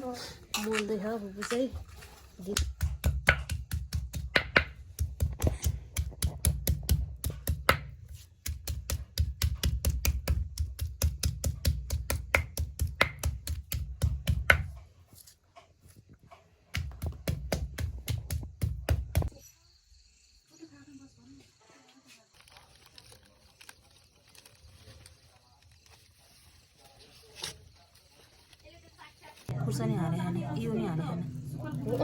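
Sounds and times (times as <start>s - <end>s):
knife chopping on a board: 2.6s - 14.8s, 16.8s - 19.3s.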